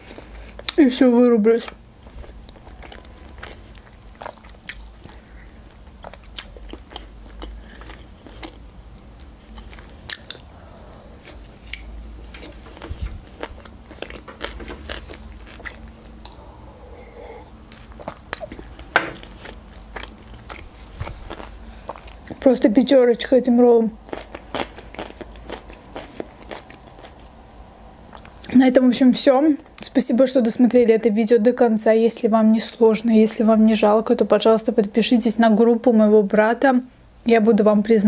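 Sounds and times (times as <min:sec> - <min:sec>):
person chewing: 0:01.7 - 0:22.5, 0:24.0 - 0:28.5.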